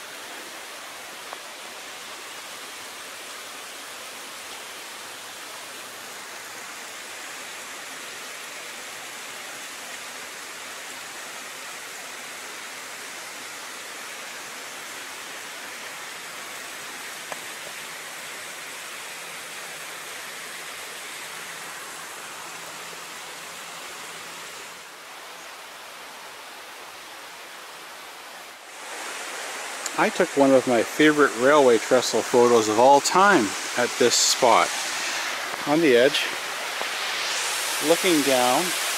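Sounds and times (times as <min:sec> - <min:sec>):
steady rushing outdoor noise: 0:27.8 - 0:38.9.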